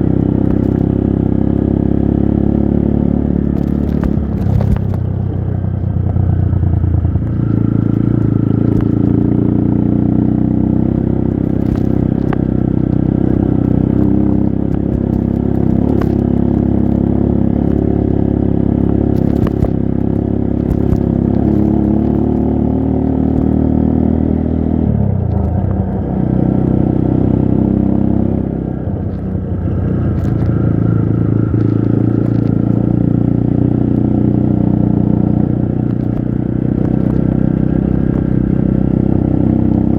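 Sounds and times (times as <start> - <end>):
motorcycle engine revving: 0.0 - 39.9
clicks and clatter: 0.4 - 0.8, 3.5 - 5.1, 7.2 - 9.2, 11.4 - 12.9, 14.0 - 17.0, 19.1 - 22.4, 29.0 - 29.4, 30.1 - 30.7, 31.4 - 32.8, 35.9 - 38.2.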